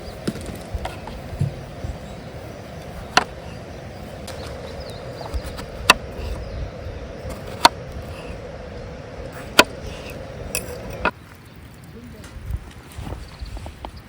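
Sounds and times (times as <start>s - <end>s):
steady background hum: 0.0s - 11.6s
hatchet chopping firewood: 3.1s - 3.3s, 9.4s - 11.1s.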